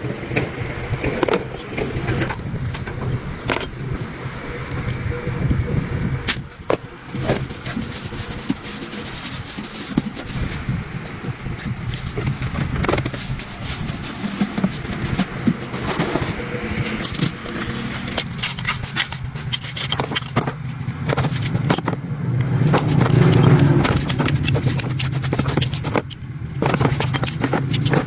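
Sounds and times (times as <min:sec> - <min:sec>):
metal scraping and clicking: 0:11.5 - 0:28.0.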